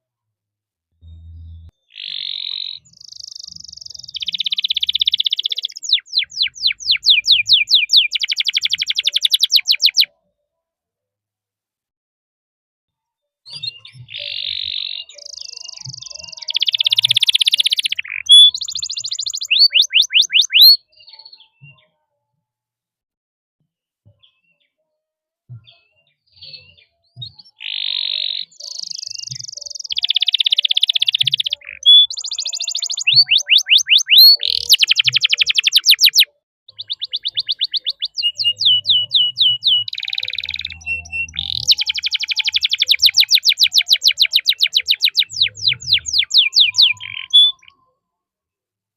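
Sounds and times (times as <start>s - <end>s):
canary singing trills and chirps: 1.0s - 10.1s, 13.5s - 21.5s, 26.3s - 47.9s.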